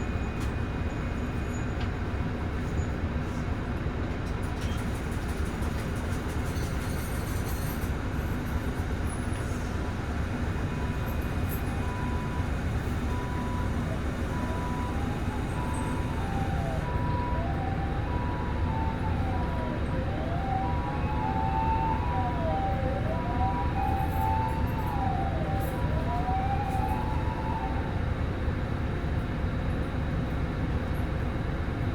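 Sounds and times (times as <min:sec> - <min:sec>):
bus diesel engine running: 0:00.0 - 0:31.9
road noise rumble: 0:01.9 - 0:31.9
two-tone siren: 0:10.6 - 0:28.0
wailing siren: 0:10.6 - 0:28.2.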